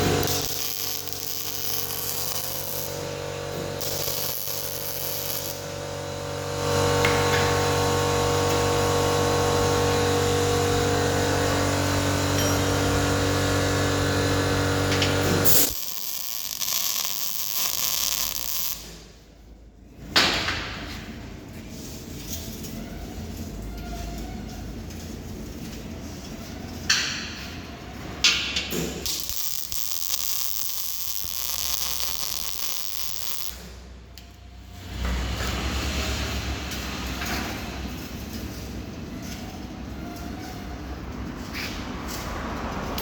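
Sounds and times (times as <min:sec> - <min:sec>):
welder arc hissing crackle: 0:00.0 - 0:08.0, 0:11.5 - 0:19.1, 0:29.0 - 0:33.9.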